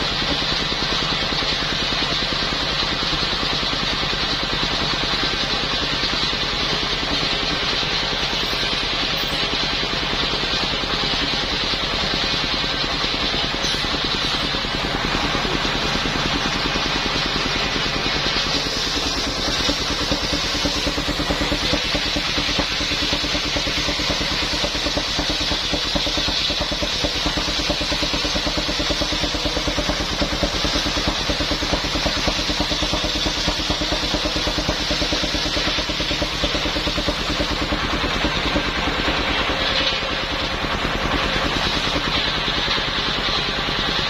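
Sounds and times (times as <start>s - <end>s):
saw engine running: 1.5s - 44.0s
saw cutting timber: 13.5s - 16.6s, 18.2s - 38.9s.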